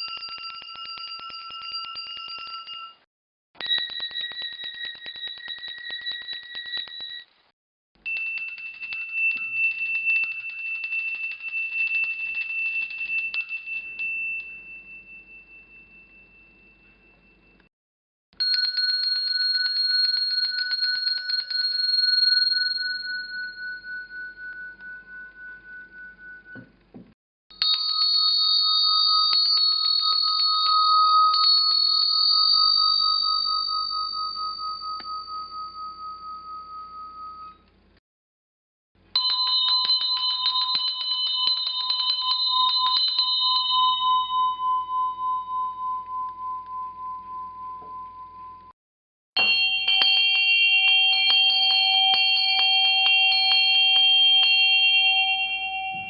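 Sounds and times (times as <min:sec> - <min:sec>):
bells struck rapidly ringing out: 0:00.0 - 0:03.0, 0:03.6 - 0:07.2, 0:08.1 - 0:17.4, 0:18.4 - 0:25.9, 0:39.2 - 0:45.8, 0:49.4 - 0:56.0.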